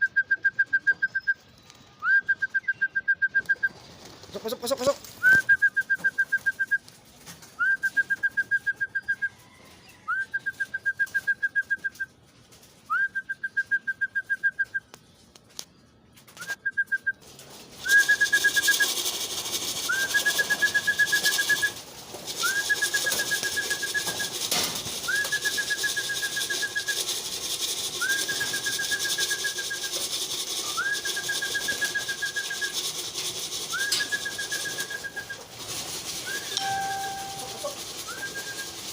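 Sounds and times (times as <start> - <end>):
trilled hand whistle blasts: 36.3 - 38.8.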